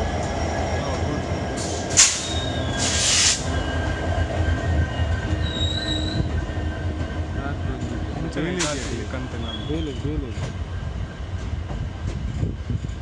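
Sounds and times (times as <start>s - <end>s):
train rumbling on rails: 0.0s - 13.0s
high wheel squeal: 0.7s - 4.0s, 4.8s - 6.4s, 9.3s - 10.1s
short hissing bursts: 1.9s - 3.5s.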